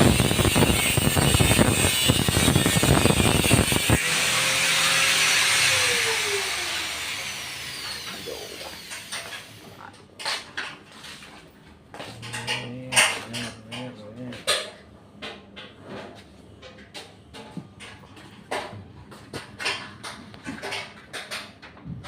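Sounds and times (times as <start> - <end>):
motor winding down whine: 0.0 - 9.8
power tool cutting: 0.0 - 9.8.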